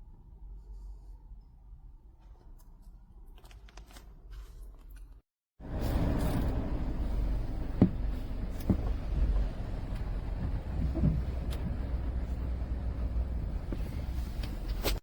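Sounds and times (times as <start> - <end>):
car cabin low rumble: 5.6 - 15.0.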